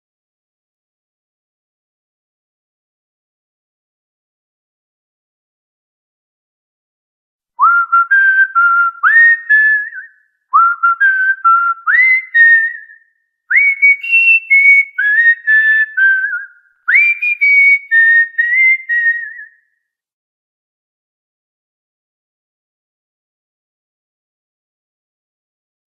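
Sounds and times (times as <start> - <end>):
cockatiel whistling a tune: 7.6 - 19.6.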